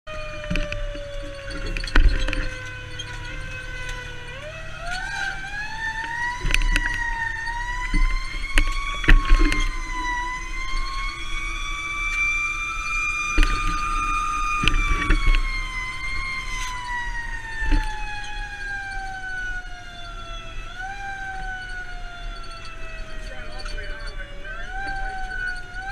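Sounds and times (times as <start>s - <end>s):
fire engine siren wailing: 0.1s - 25.9s
truck engine rumbling: 0.1s - 25.9s
knocks and rattles: 0.3s - 19.1s.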